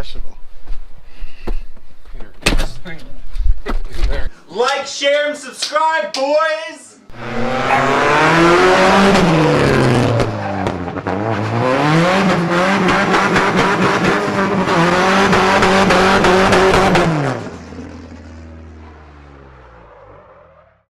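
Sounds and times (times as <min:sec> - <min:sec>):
engine revving hard: 0:07.1 - 0:20.2.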